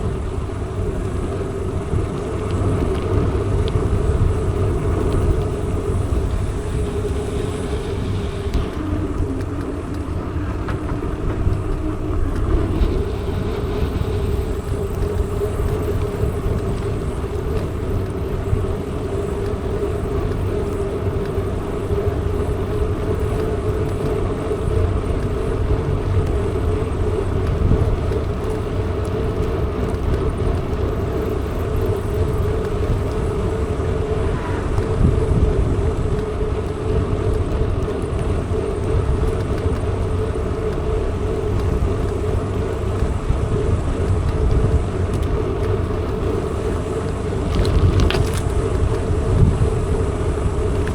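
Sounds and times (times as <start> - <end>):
bike rolling noise: 0.0 - 50.9
constant hum: 0.0 - 50.9
wind rumbling on microphone: 0.0 - 50.9.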